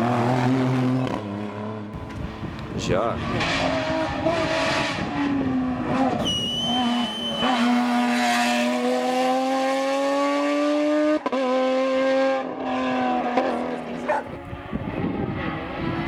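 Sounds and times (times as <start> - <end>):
race car engine accelerating: 0.0 - 16.0
brief high squeal: 6.2 - 7.8.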